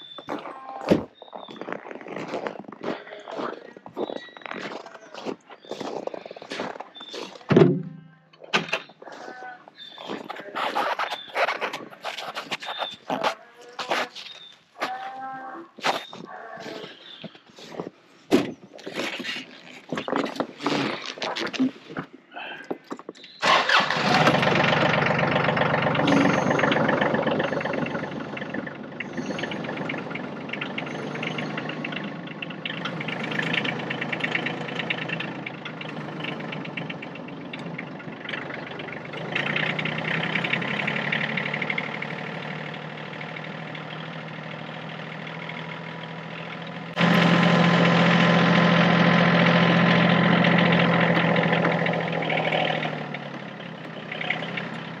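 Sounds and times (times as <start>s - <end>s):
tractor diesel engine running: 23.4s - 55.0s.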